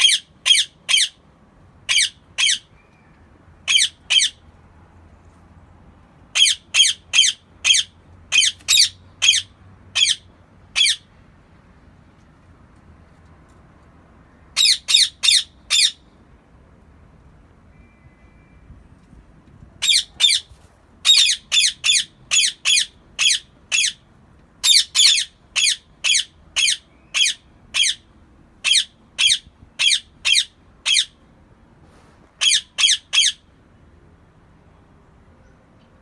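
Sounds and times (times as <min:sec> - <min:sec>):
parakeet squawking: 0:00.0 - 0:01.2, 0:01.9 - 0:02.7, 0:03.7 - 0:04.4, 0:06.3 - 0:11.0, 0:14.6 - 0:16.0, 0:19.8 - 0:24.0, 0:24.6 - 0:31.2, 0:32.4 - 0:33.5.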